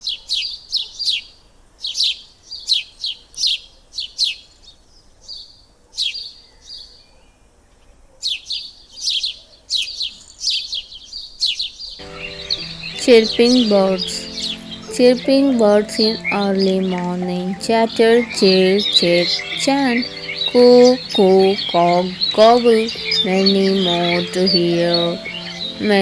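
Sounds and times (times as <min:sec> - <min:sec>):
small birds chirping: 0:11.8 - 0:26.0.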